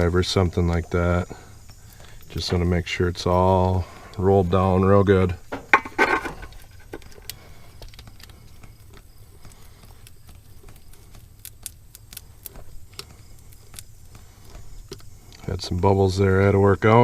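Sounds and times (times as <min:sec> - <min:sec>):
low steady hum: 0:00.0 - 0:17.0
hand tool tapping and scraping: 0:05.5 - 0:15.5.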